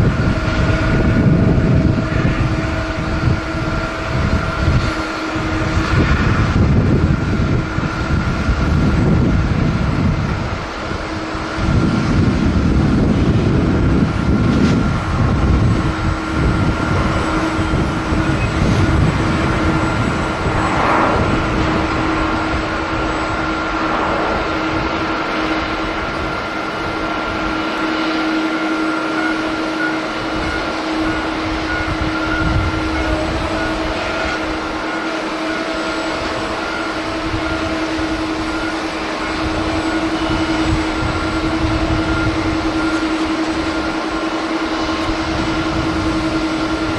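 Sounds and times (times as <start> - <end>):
jet engines whining and rumbling: 0.0 - 46.9.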